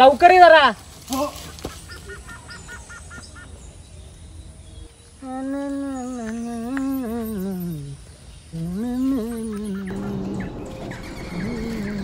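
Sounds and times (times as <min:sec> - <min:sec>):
bird chirping: 0:00.0 - 0:12.0
man humming: 0:05.2 - 0:10.6.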